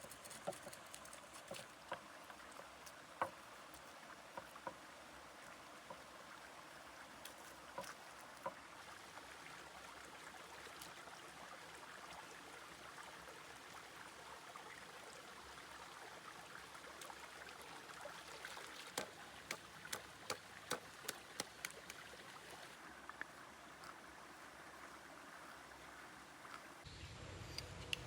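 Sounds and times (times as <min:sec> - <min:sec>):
water flowing: 0:00.0 - 0:26.9.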